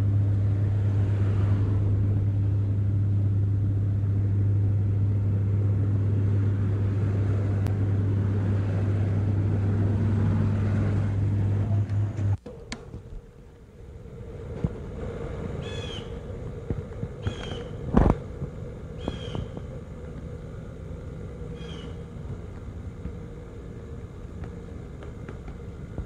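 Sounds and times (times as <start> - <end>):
faint low hum: 0.0 - 26.0
outdoor background noise: 0.0 - 26.0
bird calling: 15.6 - 16.3, 17.2 - 17.8, 19.0 - 19.7, 21.5 - 22.1.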